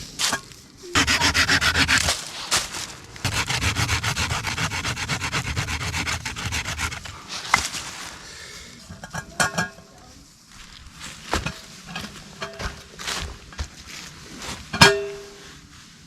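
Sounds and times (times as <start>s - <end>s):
hand saw cutting wood: 1.0s - 7.7s.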